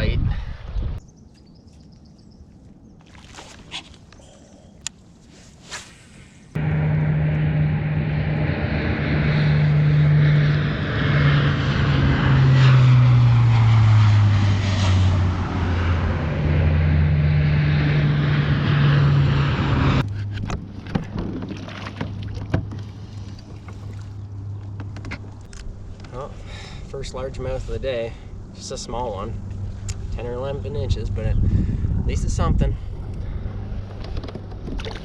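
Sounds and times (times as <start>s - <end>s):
boat engine running: 6.6s - 12.8s, 15.2s - 26.2s.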